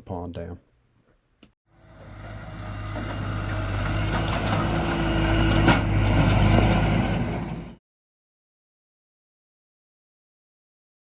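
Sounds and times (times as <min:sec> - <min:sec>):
diesel engine running: 0:01.7 - 0:07.8.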